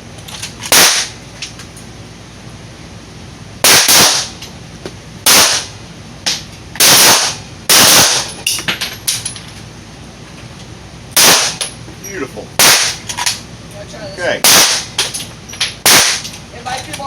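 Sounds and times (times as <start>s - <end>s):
handgun shots with echo: 14.4s - 15.1s, 15.9s - 16.3s.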